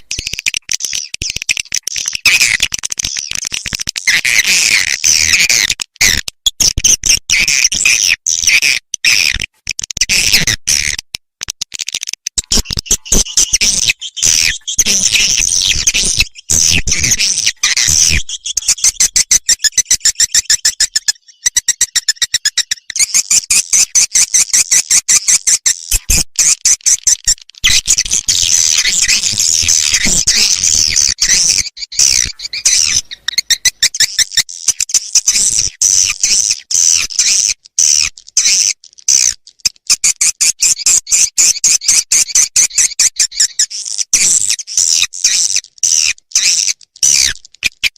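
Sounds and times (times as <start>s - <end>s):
swiftlet chirps and twitters: 12.4s - 26.1s, 26.7s - 38.5s.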